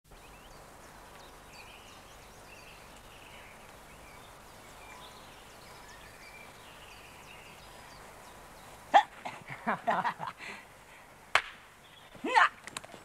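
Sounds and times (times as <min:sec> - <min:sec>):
birds chirping and whistling: 0:00.1 - 0:08.9, 0:11.8 - 0:12.2
steady hiss: 0:00.1 - 0:13.0.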